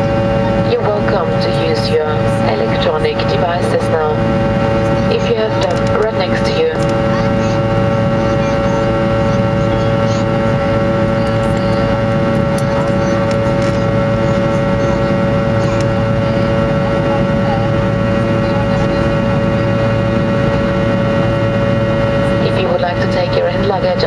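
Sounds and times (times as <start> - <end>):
jet engines rumbling in cabin: 0.0 - 24.0
steady engine whine: 0.0 - 24.0.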